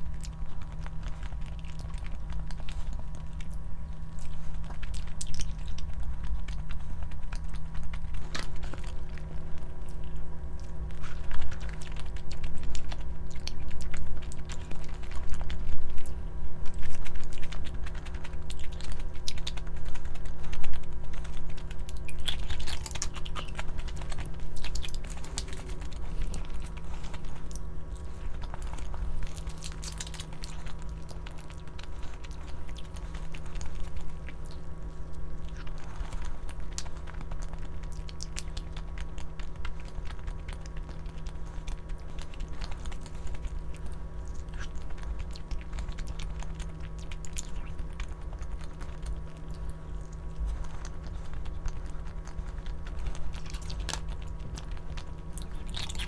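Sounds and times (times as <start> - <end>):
low hum: 0.0 - 56.0
person chewing food: 0.0 - 56.0.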